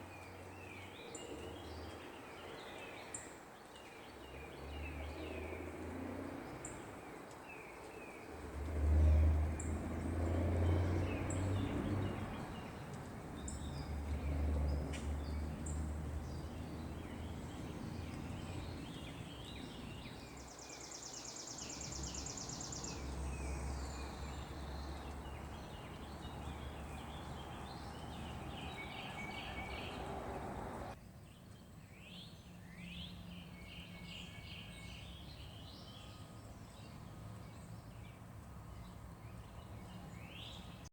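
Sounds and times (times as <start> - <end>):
birds chirping: 0.0 - 40.9
truck diesel engines rumbling: 23.0 - 31.0.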